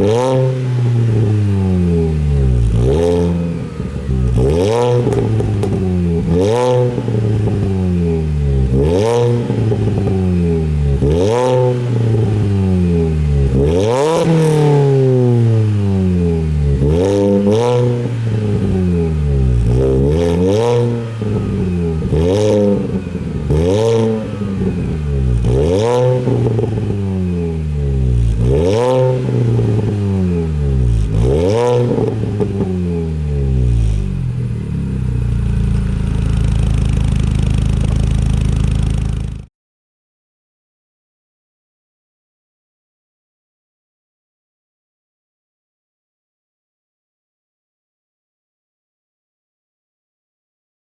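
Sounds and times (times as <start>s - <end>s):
car engine revving: 0.0s - 39.5s.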